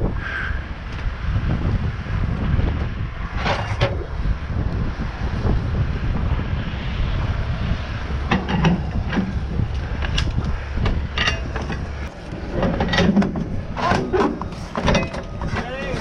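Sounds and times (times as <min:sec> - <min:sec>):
engine rumbling: 0:00.0 - 0:16.0
rattles and clanks: 0:03.3 - 0:04.2, 0:08.0 - 0:16.0.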